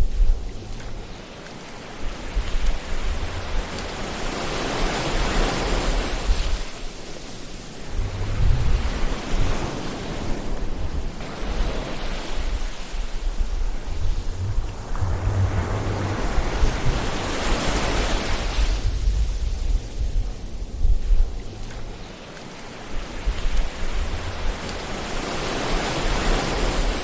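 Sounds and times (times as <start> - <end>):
ocean surf washing ashore: 0.0 - 27.0
low rumble: 7.8 - 9.7, 12.5 - 22.1.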